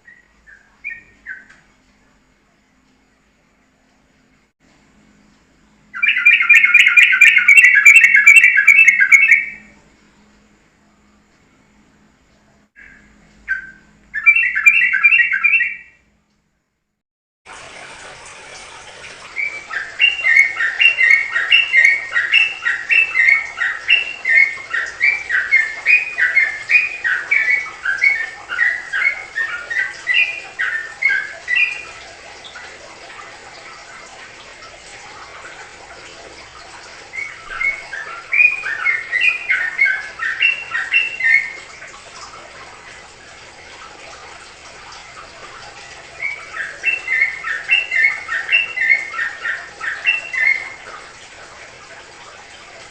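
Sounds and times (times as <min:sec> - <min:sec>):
bulbul singing chattering song: 0:00.0 - 0:02.8, 0:05.2 - 0:10.3, 0:12.8 - 0:16.0, 0:19.4 - 0:32.6, 0:37.1 - 0:41.6, 0:46.1 - 0:50.8.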